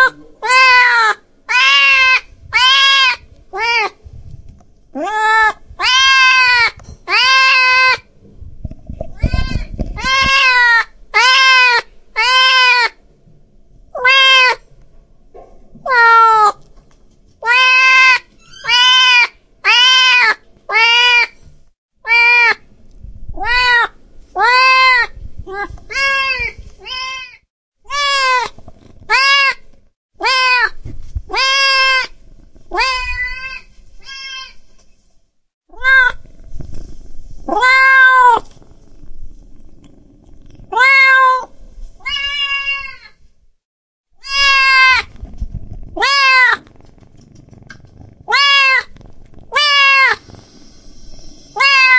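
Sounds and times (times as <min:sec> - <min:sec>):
cat meowing: 0:00.0 - 0:04.0, 0:05.0 - 0:08.0, 0:09.2 - 0:13.0, 0:14.0 - 0:14.6, 0:15.9 - 0:16.6, 0:17.4 - 0:21.4, 0:22.1 - 0:22.6, 0:23.4 - 0:28.5, 0:30.2 - 0:34.6, 0:35.7 - 0:36.2, 0:37.5 - 0:38.5, 0:40.6 - 0:43.2, 0:44.2 - 0:45.1, 0:46.0 - 0:46.6, 0:48.2 - 0:50.2, 0:51.6 - 0:51.9.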